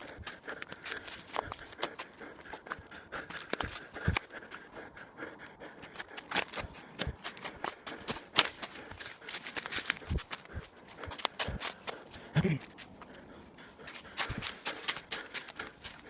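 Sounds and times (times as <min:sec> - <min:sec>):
footsteps crunching on a trail: 0:00.0 - 0:16.0.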